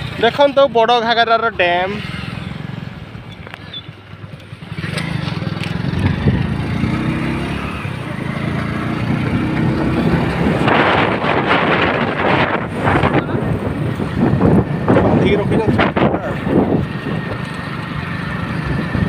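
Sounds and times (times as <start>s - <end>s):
motorcycle engine running: 0.0s - 19.0s
loud rushing noise: 5.8s - 17.2s.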